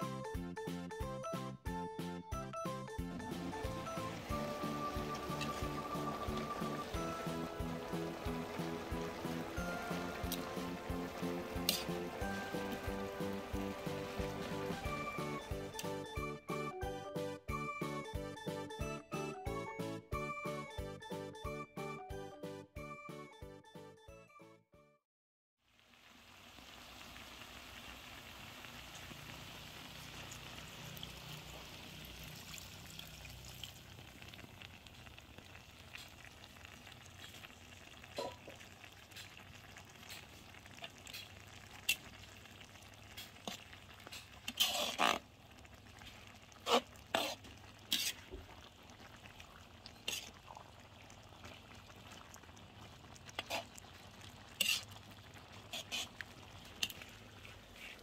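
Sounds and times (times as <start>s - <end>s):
soft sizzle in wok: 3.4s - 16.2s, 25.6s - 58.0s
metal spatula scraping wok: 11.4s - 12.9s, 43.1s - 45.3s, 46.0s - 48.3s, 50.0s - 50.4s, 53.4s - 53.8s, 54.5s - 55.0s, 55.6s - 56.2s.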